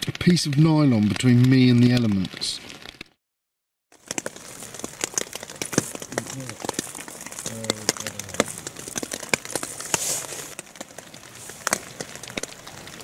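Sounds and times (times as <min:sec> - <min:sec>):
rain pattering on a tent: 0:00.0 - 0:03.2, 0:03.9 - 0:13.0.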